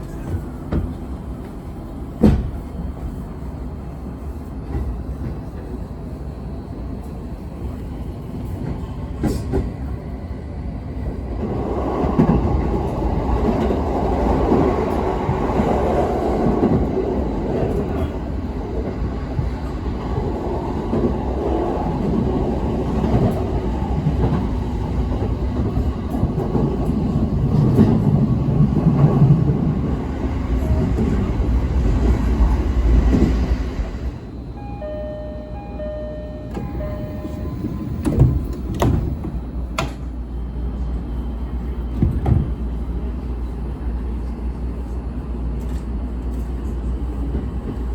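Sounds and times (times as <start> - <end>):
train rumbling on rails: 0.0 - 47.9.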